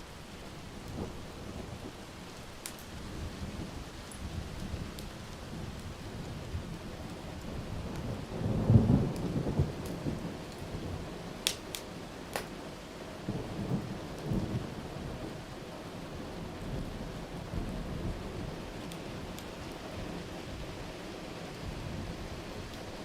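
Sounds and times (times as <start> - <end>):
steady rain: 0.0 - 23.0
wood fire popping: 2.3 - 3.0, 11.4 - 12.5, 18.5 - 19.9
thunder rumbling: 7.5 - 10.8.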